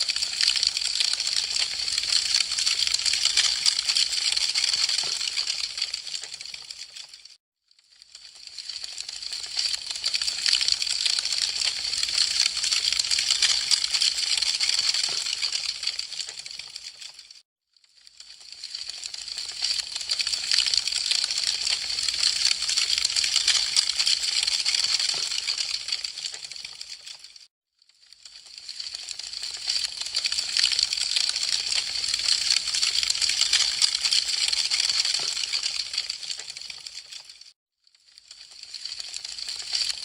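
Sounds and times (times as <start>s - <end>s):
wood fire crackling: 0.1s - 7.1s, 18.2s - 27.2s, 28.3s - 37.1s.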